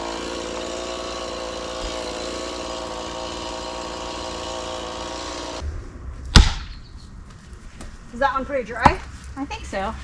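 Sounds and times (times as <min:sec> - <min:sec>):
chainsaw running: 0:00.0 - 0:05.6.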